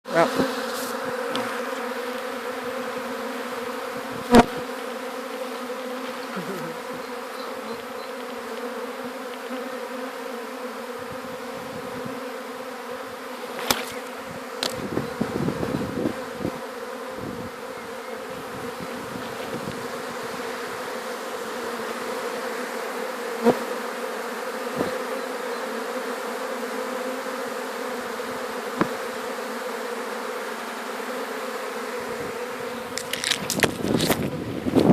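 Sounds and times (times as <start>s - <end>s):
bees buzzing: 0.1s - 34.9s
handling noise: 32.9s - 34.9s.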